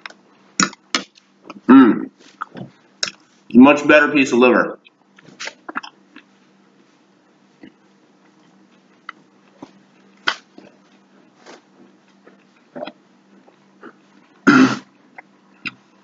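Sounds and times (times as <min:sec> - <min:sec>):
man chewing with wet smacks: 0:00.0 - 0:01.7, 0:02.3 - 0:03.3, 0:04.8 - 0:06.4, 0:07.6 - 0:11.1, 0:11.7 - 0:16.0
man coughing: 0:01.7 - 0:02.1, 0:14.5 - 0:14.8.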